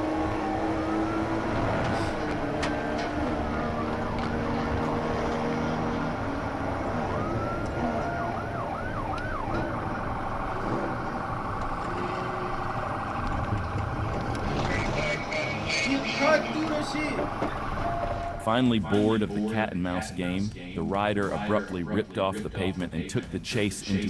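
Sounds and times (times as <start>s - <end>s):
police siren: 0.0s - 18.5s
patrol car rumble: 0.0s - 24.0s.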